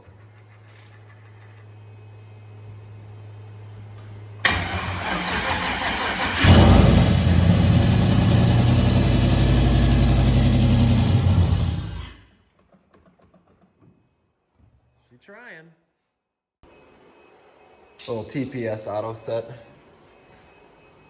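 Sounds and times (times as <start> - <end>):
starter cranking engine: 4.4 - 12.2
car engine running: 6.4 - 12.2.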